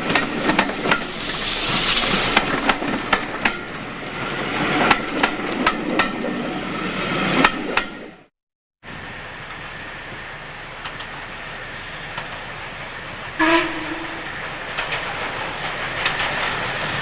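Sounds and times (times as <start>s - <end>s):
hiss: 0.0s - 5.0s
train wheels clanking on rail joints: 0.0s - 8.2s, 9.4s - 17.0s
train rumble: 0.0s - 8.3s, 8.9s - 17.0s.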